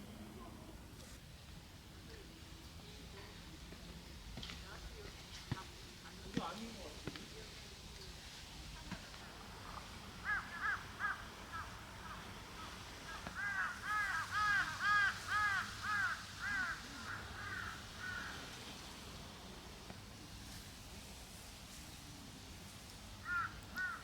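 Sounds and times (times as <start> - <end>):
crow cawing: 10.2 - 18.5, 23.2 - 24.0.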